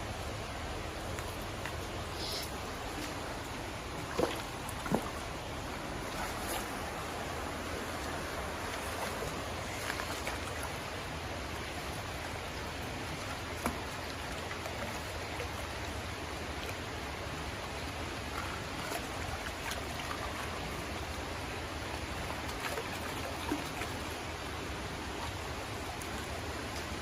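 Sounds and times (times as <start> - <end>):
creek water running: 0.0 - 27.0.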